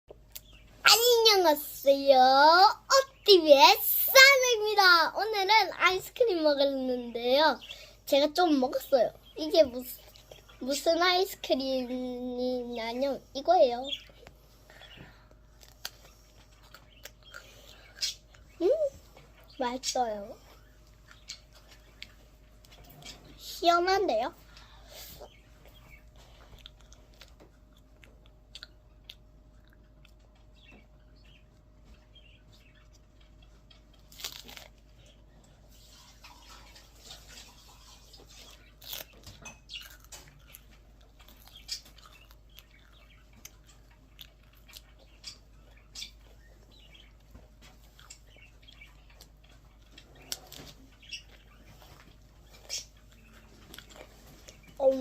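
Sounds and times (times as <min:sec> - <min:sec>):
ice cream cone being chewed: 0:15.5 - 0:18.5, 0:25.6 - 0:30.7, 0:32.6 - 0:54.7
cone crunching: 0:34.0 - 0:34.8, 0:38.8 - 0:39.2, 0:39.8 - 0:40.6.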